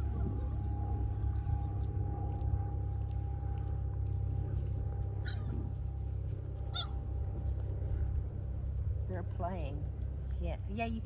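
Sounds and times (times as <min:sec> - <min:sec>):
puppies yipping: 0:05.2 - 0:05.6, 0:06.7 - 0:07.0.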